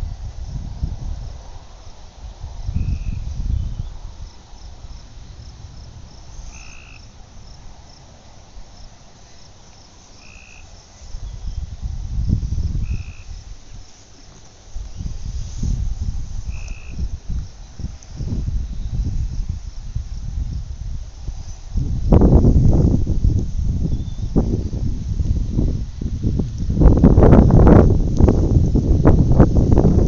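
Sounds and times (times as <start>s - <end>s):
insects chirping: 0.0s - 30.0s
wind on microphone: 0.0s - 30.0s
short high frog call: 6.3s - 7.2s, 10.2s - 10.7s, 12.7s - 13.4s, 16.4s - 17.1s.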